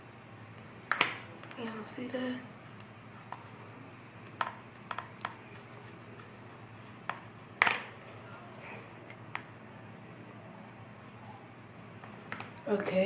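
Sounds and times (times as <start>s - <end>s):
stick tapping against container: 4.2s - 5.4s.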